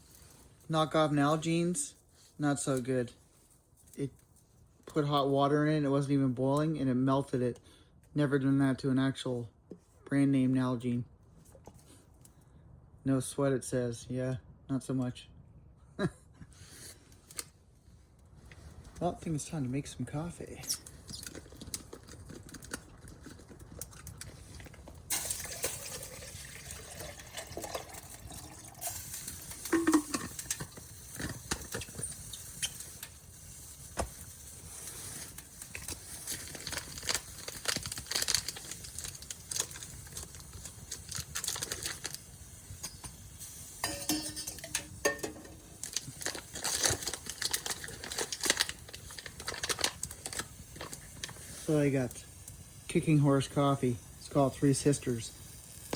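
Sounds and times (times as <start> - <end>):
steady hiss: 25.1 - 55.9
cookware clinking and knocking: 29.7 - 30.3, 43.8 - 45.6.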